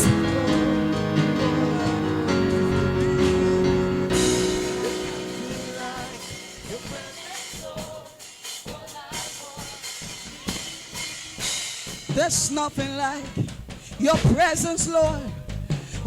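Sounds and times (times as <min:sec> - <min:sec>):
held chord: 0:00.0 - 0:07.6.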